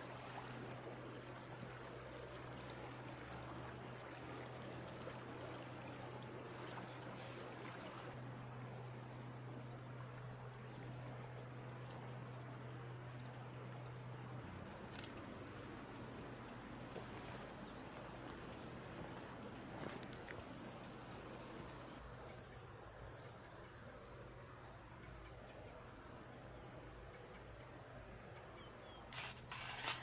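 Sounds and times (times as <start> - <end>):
flowing water rushing: 0.0 - 12.7
low steady hum: 0.0 - 30.0.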